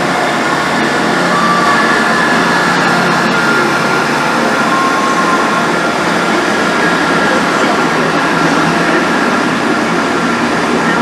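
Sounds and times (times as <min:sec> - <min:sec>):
thin high tones: 0:00.0 - 0:07.6
diesel train rumbling: 0:00.0 - 0:11.0.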